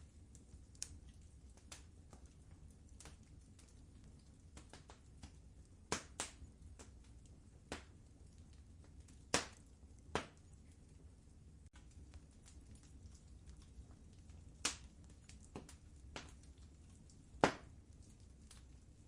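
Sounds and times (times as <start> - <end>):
wood fire crackling: 0.0 - 19.0
sharp fire pops: 4.5 - 8.0, 8.8 - 10.6, 14.5 - 18.7.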